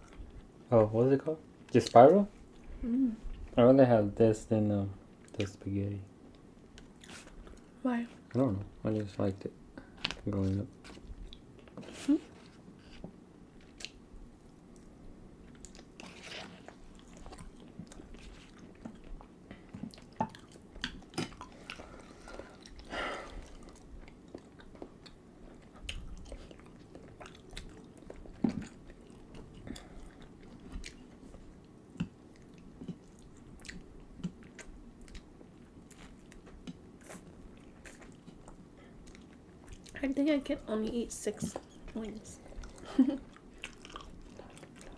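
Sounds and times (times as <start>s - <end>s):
chewing and mouth smacks: 13.6s - 40.0s, 41.5s - 44.9s.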